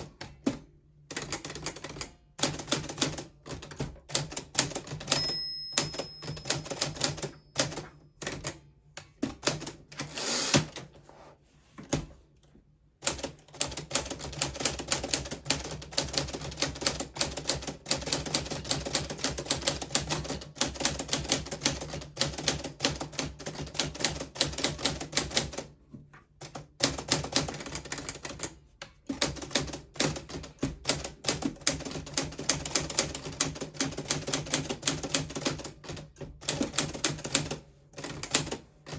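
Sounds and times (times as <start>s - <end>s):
typewriter bell ring: 4.9s - 8.3s.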